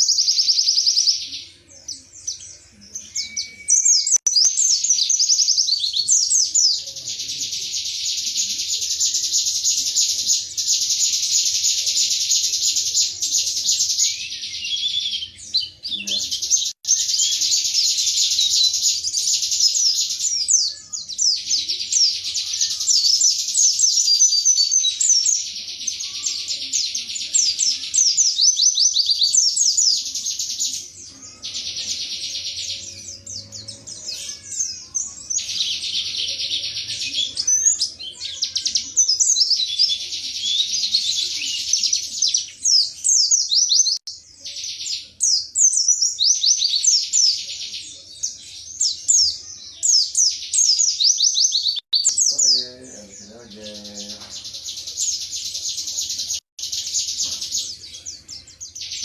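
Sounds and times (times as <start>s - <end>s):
bird singing rapid trills: 0.0s - 47.4s.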